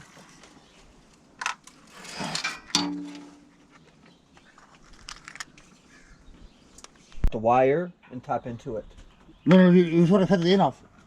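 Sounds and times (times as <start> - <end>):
metal tools clinking and rattling: 2.0 - 3.5.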